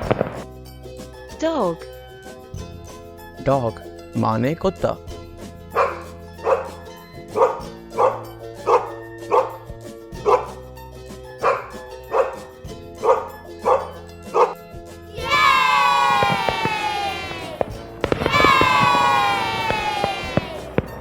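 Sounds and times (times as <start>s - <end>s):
dog barking: 5.7s - 6.8s, 7.4s - 10.5s, 11.4s - 14.6s.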